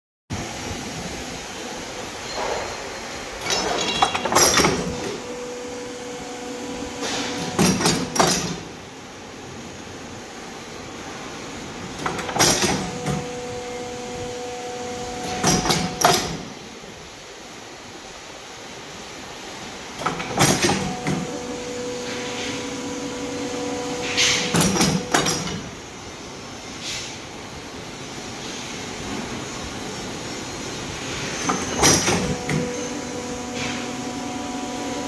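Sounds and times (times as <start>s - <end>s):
pipe bending machine humming: 0.4s - 9.1s, 11.8s - 16.9s, 19.8s - 26.3s, 31.4s - 35.0s.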